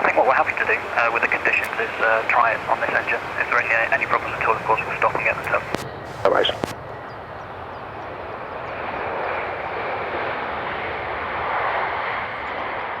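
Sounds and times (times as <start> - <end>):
jet engine rushing: 0.0 - 6.8.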